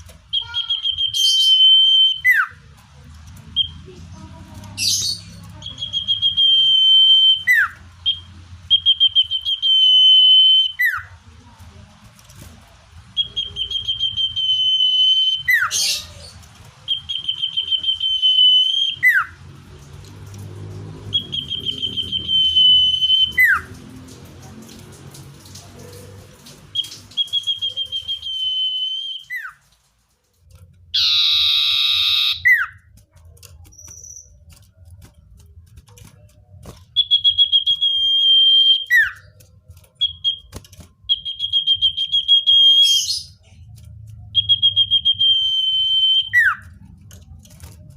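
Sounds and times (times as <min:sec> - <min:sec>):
bird high whistle song: 0:00.3 - 0:02.6, 0:04.8 - 0:11.1, 0:13.2 - 0:16.2, 0:16.8 - 0:19.4, 0:21.0 - 0:23.7, 0:26.7 - 0:29.6, 0:31.0 - 0:32.8, 0:36.9 - 0:39.3, 0:40.0 - 0:43.5, 0:44.3 - 0:46.8
harsh rasping bird call: 0:31.0 - 0:32.8.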